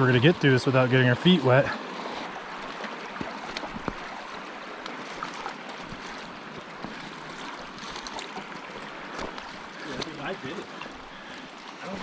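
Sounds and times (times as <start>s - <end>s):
bike splashing through creek: 0.0s - 12.0s.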